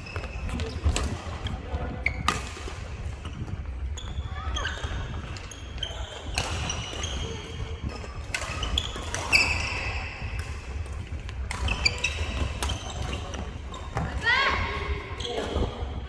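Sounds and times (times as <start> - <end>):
shoes squeaking on floor: 3.2 - 10.8, 11.5 - 15.8.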